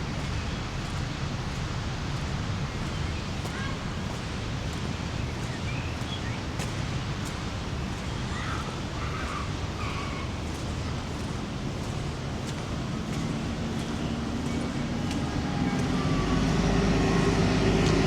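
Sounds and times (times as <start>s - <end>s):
waterfall rushing: 7.5s - 18.0s.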